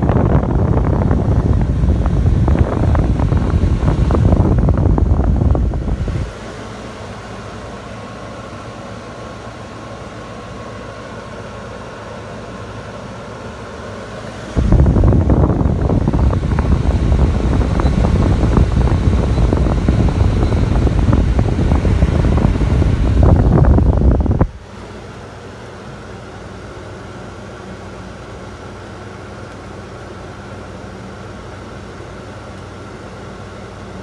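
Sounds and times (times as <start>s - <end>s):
rushing airflow: 0.0s - 6.7s, 14.1s - 24.7s
air conditioner humming: 0.0s - 34.0s.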